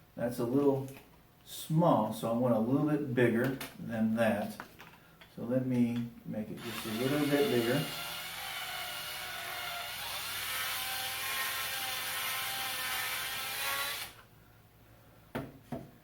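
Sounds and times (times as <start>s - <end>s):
electric drill boring plastic: 6.6s - 14.2s.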